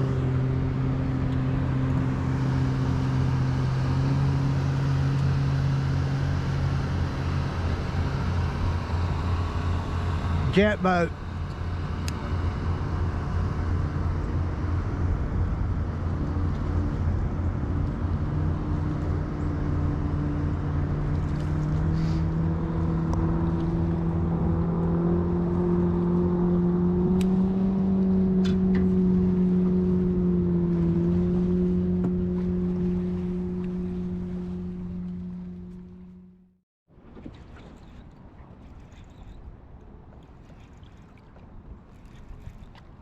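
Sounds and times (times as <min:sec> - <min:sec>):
low rumble: 0:00.0 - 0:36.6
boat engine passing: 0:00.0 - 0:43.0.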